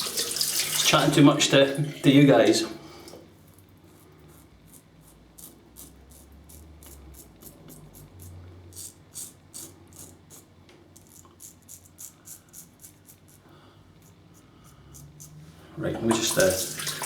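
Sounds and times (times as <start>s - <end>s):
razor scraping through stubble: 3.8s - 15.6s.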